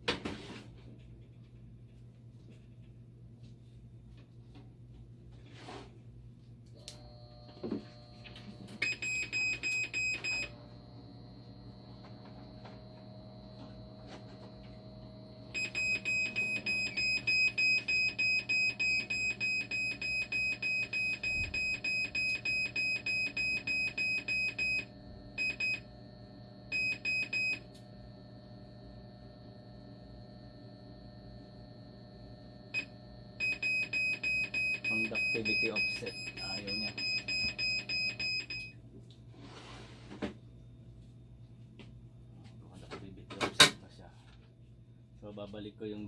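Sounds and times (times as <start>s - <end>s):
steady high whine: 6.8s - 38.7s
machine alarm beeping rapidly: 8.8s - 10.5s, 15.5s - 25.9s, 26.7s - 27.6s, 32.7s - 38.8s.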